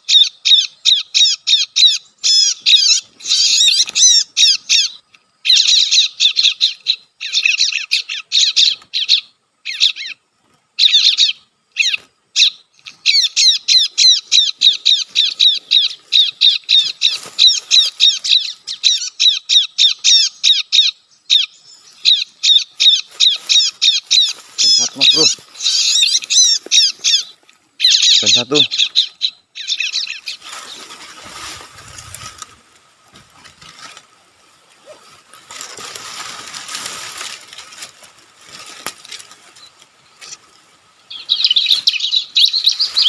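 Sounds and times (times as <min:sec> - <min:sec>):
rapid high bird chirps from speaker: 0:10.8 - 0:30.8.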